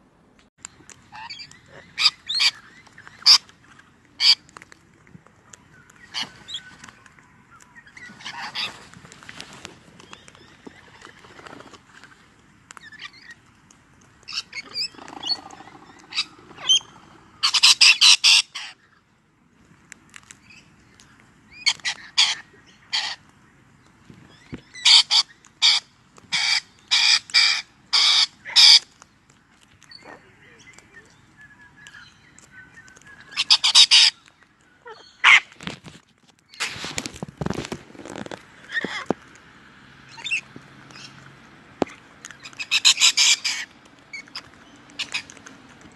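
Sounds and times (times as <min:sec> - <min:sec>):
parrot squawking: 0:14.3 - 0:18.8, 0:33.4 - 0:34.2, 0:34.8 - 0:35.4, 0:42.6 - 0:44.3.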